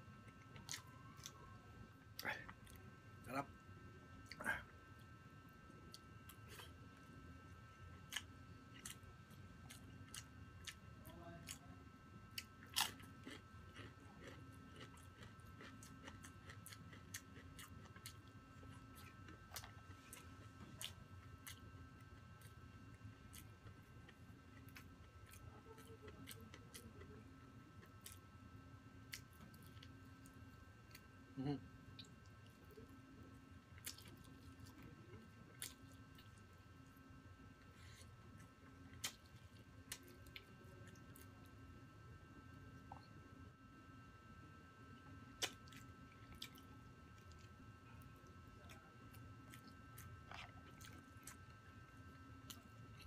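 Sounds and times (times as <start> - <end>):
faint steady hum: 0.0 - 53.0
crunchy chewing: 0.2 - 1.5, 7.5 - 11.7, 12.3 - 28.3, 29.0 - 31.1, 33.7 - 37.0, 45.3 - 53.0.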